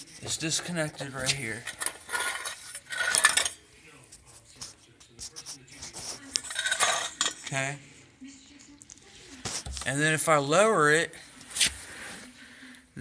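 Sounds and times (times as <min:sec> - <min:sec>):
metal parts clattering: 0:01.5 - 0:03.6, 0:06.5 - 0:07.4.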